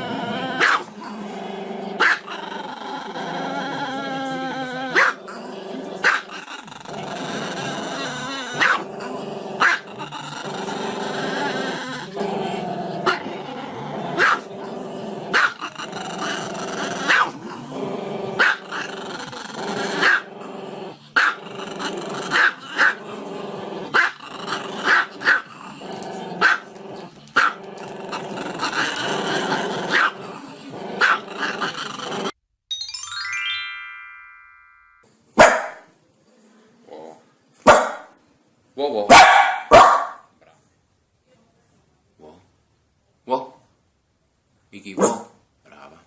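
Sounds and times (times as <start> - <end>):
dog growling: 0.0 - 32.4
dog barking sharply: 35.4 - 35.8, 37.7 - 38.1, 39.1 - 40.2, 45.0 - 45.4.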